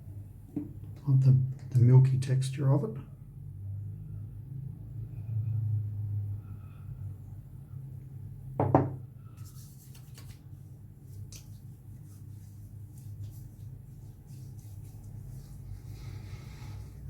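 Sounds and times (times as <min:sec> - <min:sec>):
hands rubbing and patting skin: 0:09.3 - 0:16.0.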